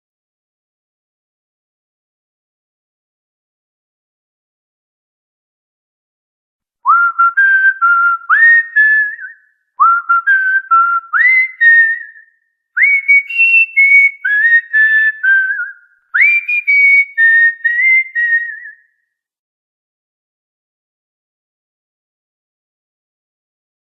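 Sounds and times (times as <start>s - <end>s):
cockatiel whistling a tune: 6.9s - 12.2s, 12.8s - 18.8s.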